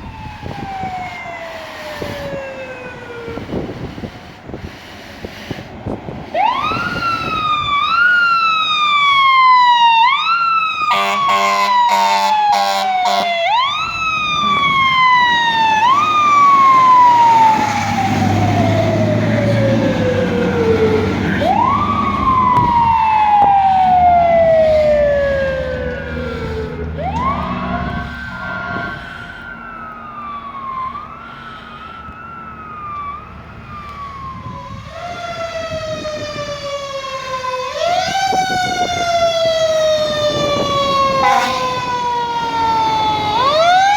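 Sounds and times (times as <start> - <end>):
fire truck siren: 0.0 - 43.9
truck engine rumbling: 0.0 - 43.9
air horn blasts: 10.9 - 13.4, 27.4 - 29.1, 41.1 - 41.9.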